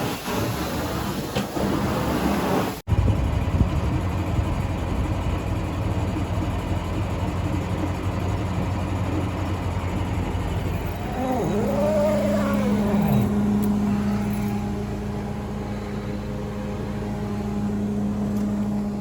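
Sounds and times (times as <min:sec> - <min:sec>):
engine running with low rumble: 0:02.9 - 0:19.0.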